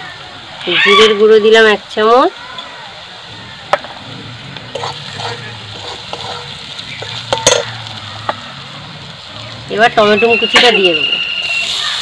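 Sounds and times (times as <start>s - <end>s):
masala sizzling in oil: 0.0s - 12.0s
metal spatula scraping a pan: 4.1s - 8.4s.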